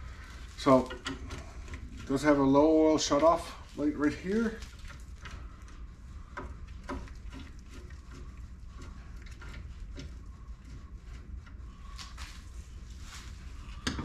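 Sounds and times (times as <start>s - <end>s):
tools clicking and knocking: 0.8s - 1.8s.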